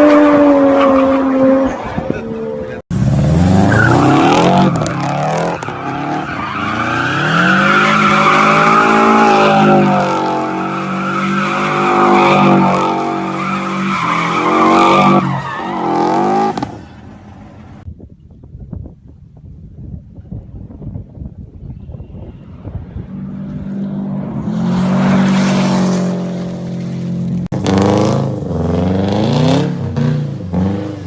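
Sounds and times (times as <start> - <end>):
car engine revving hard: 2.9 - 16.8, 27.5 - 31.0
faint wind noise: 16.7 - 27.4.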